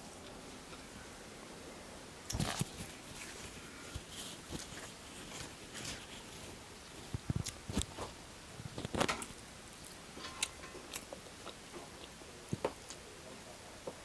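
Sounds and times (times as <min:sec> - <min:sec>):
person chewing food: 0:02.3 - 0:06.5, 0:07.1 - 0:08.1, 0:09.8 - 0:13.0.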